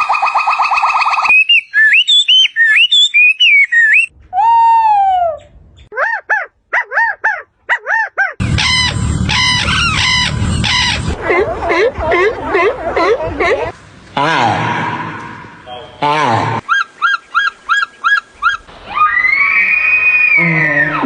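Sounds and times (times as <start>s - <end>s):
harsh repeated bird call: 8.4s - 11.2s
warbling bird chirps: 8.4s - 11.2s
noisy background: 8.4s - 16.6s.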